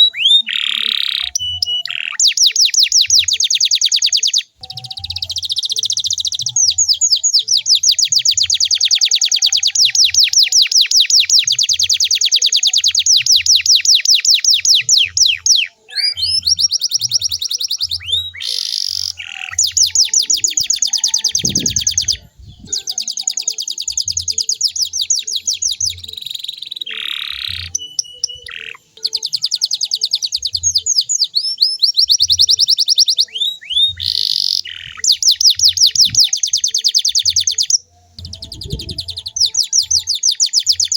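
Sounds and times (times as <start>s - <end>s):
canary singing high trills: 0.0s - 40.9s.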